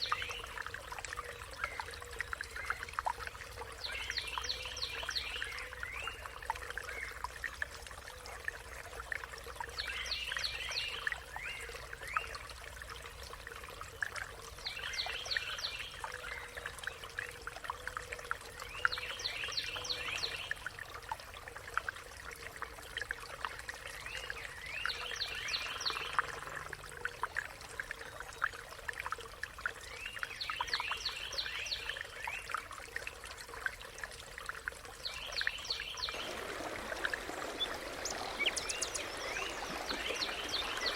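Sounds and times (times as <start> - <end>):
water trickling: 0.0 - 40.9
faint bird chirps: 35.1 - 40.9
bird singing rapid notes: 37.4 - 40.9.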